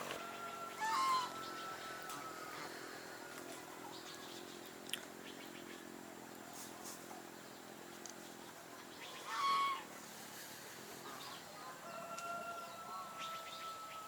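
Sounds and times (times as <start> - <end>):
poultry calling: 0.0 - 4.2, 8.9 - 10.0.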